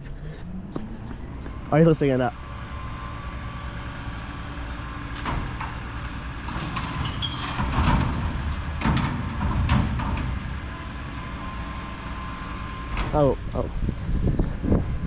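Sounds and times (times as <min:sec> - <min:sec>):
recycling truck engine running: 0:00.0 - 0:15.0
metal clanks and bangs: 0:05.2 - 0:10.8
brief squeal: 0:07.0 - 0:07.6.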